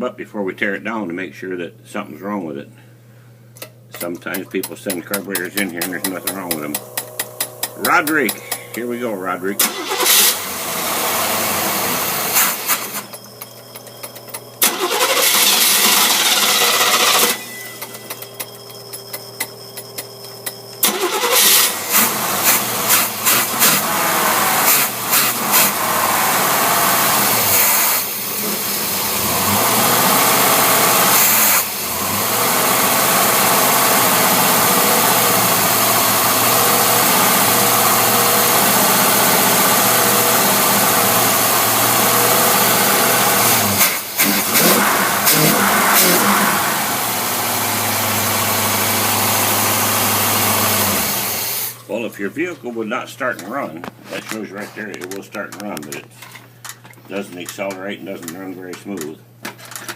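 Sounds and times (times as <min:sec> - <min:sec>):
engine cranking: 0:04.0 - 0:09.0, 0:09.6 - 0:19.5, 0:20.2 - 0:27.8, 0:39.7 - 0:48.5
engine sputtering and running: 0:05.0 - 0:09.0, 0:09.6 - 0:51.6.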